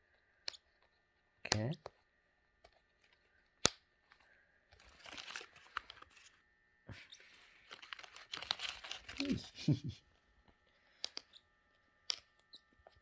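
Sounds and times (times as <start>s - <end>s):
crackly rustling and crunching: 4.1s - 6.4s, 7.0s - 9.8s.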